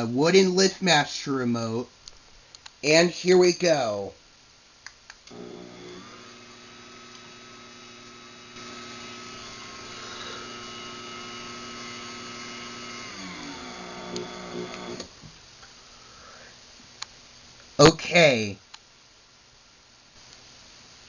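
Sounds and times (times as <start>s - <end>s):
garage door opener motor whine: 5.3s - 15.2s
clicks: 14.0s - 15.7s.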